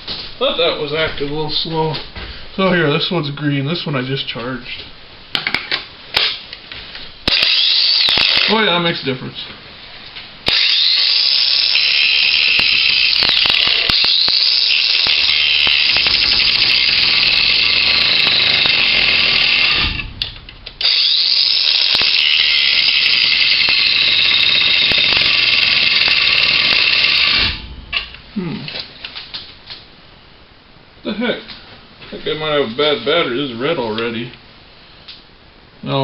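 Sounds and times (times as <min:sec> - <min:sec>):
angle grinder cutting steel: 0:07.3 - 0:08.6, 0:10.5 - 0:20.2, 0:20.8 - 0:27.7.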